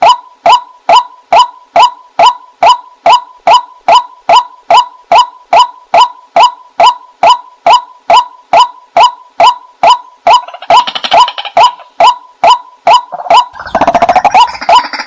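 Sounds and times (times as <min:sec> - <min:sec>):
waterhen calling: 0:10.3 - 0:15.0
fast chatter of bird notes: 0:13.6 - 0:15.0.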